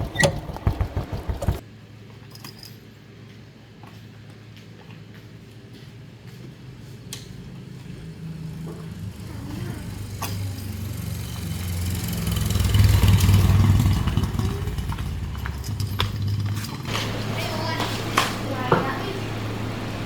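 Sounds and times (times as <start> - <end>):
motorbike engine running: 0.0 - 1.6, 7.8 - 17.8.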